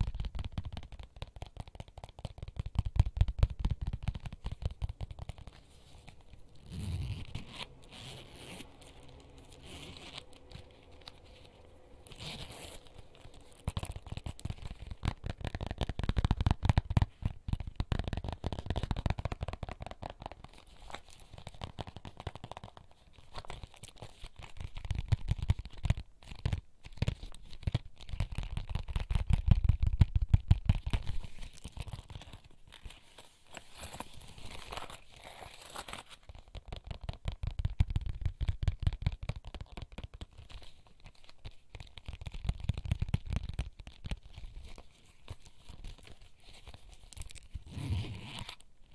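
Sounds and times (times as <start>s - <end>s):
finger tapping and scratching: 0.0s - 6.9s
crinkling: 0.0s - 48.9s.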